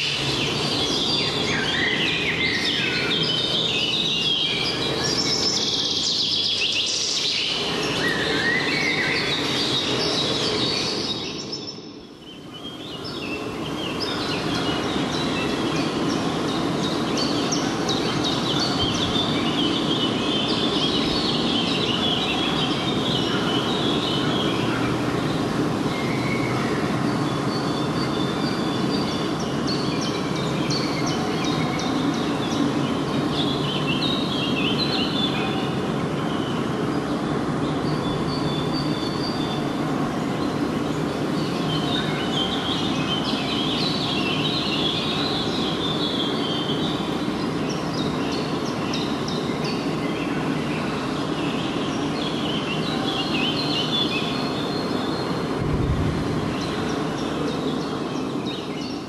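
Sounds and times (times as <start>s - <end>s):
songbirds singing: 0.0s - 59.0s
low rushing noise: 55.3s - 58.7s.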